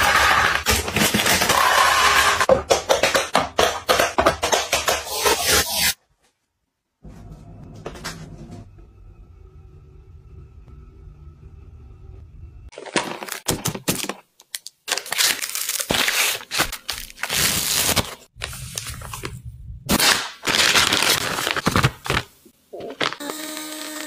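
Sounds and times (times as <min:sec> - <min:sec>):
plastic packaging crinkling and tearing: 0:12.7 - 0:24.0.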